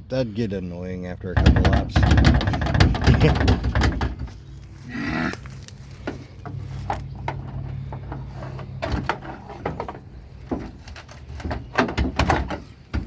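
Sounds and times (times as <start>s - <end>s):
metal clicks and knocks: 1.4s - 4.5s, 6.0s - 13.0s.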